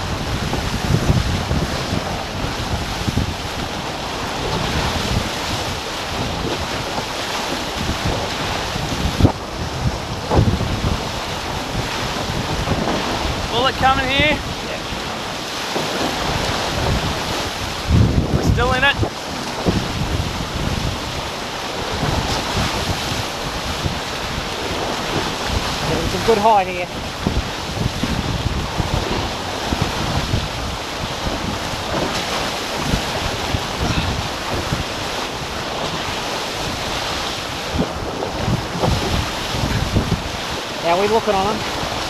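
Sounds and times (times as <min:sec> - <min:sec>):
water rushing past hulls: 0:00.0 - 0:42.0
wind buffeting microphone: 0:00.0 - 0:42.0.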